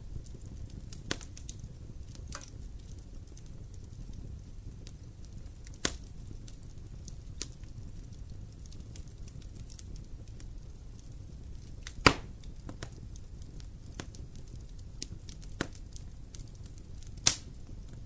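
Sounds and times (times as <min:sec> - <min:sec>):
fire crackles: 0:00.0 - 0:18.0
wood fire burning: 0:00.0 - 0:18.0
sharp loud pops: 0:12.0 - 0:12.3.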